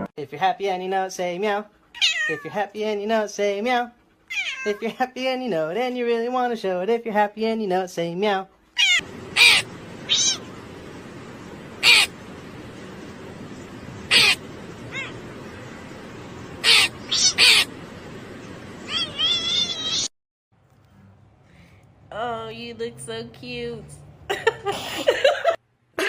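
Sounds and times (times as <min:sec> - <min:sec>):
cat meowing: 0:02.0 - 0:02.6, 0:04.3 - 0:04.8, 0:08.8 - 0:10.6, 0:11.8 - 0:12.1, 0:14.1 - 0:15.2, 0:16.6 - 0:17.7, 0:18.8 - 0:20.1
steady background hiss: 0:09.0 - 0:20.1.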